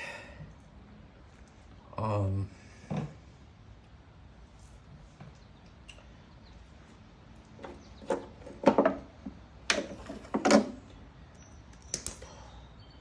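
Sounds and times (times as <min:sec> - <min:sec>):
carburetor parts scraping and knocking: 0:07.5 - 0:10.8.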